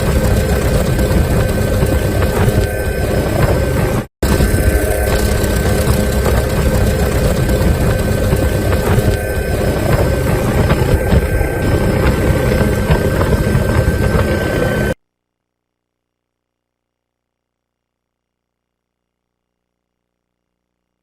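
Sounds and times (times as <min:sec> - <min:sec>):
helicopter engine and rotor: 0:00.0 - 0:15.0
thin steady whine: 0:00.0 - 0:15.0.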